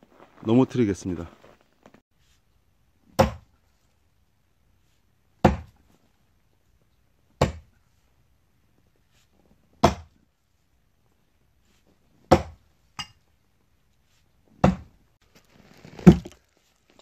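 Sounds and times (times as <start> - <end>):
axe chopping into tree trunk: 3.1 - 3.5, 5.4 - 5.8, 7.4 - 7.7, 9.8 - 10.1, 12.3 - 12.6, 14.6 - 14.9, 15.8 - 16.4.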